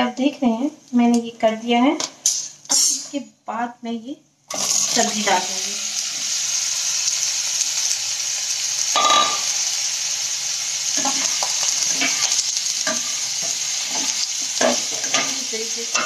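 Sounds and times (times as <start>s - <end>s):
pumpkin sizzling in hot oil: 4.5s - 16.0s
spatula scraping a pan: 11.0s - 15.4s.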